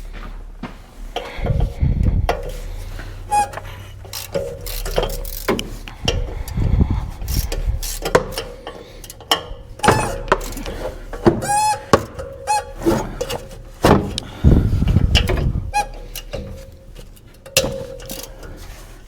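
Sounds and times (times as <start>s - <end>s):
metal knocks and clanks: 1.1s - 18.8s
short squeaks: 2.4s - 6.6s, 9.4s - 16.8s
socket ratchet clicking: 3.2s - 10.7s.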